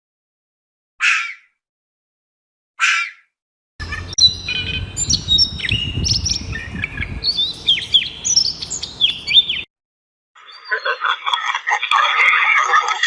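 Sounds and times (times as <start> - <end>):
birds chirping and whistling: 1.0 - 1.5, 2.8 - 9.7, 10.4 - 11.1.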